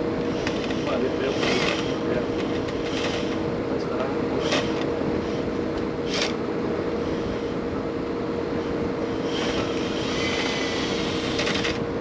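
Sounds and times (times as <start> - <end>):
motor humming: 0.0 - 12.0
light rattling and scraping: 0.2 - 6.4.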